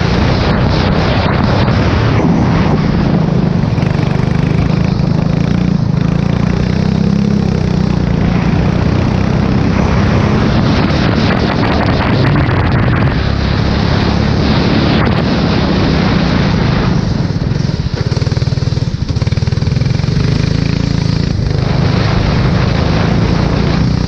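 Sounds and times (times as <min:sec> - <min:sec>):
race car engine at high revs: 0:00.0 - 0:24.0
wind and road noise: 0:00.0 - 0:24.0.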